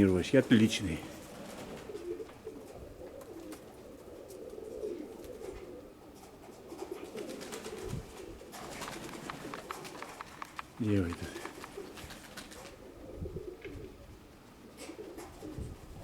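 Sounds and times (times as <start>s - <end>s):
pigeons cooing: 0.0s - 16.0s
light clicks: 8.8s - 11.8s.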